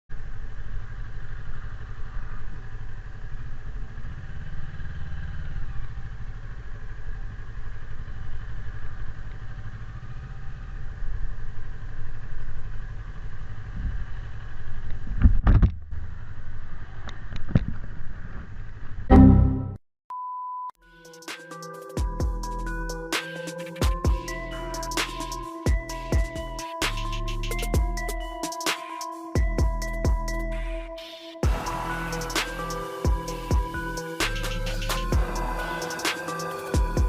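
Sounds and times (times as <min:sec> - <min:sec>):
motorcycle engine running: 0:00.2 - 0:15.2, 0:23.8 - 0:28.2, 0:29.4 - 0:30.4, 0:31.4 - 0:37.0.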